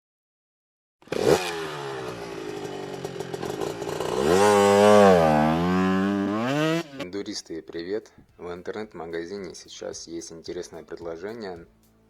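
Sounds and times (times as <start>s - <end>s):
motorcycle engine running and revving: 1.0s - 7.0s.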